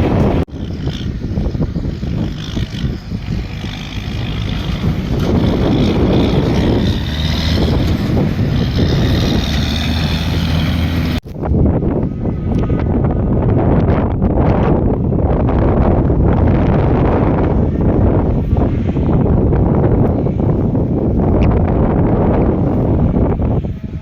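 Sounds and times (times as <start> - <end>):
diesel engine running: 0.0 - 24.0
wind buffeting microphone: 0.0 - 24.0.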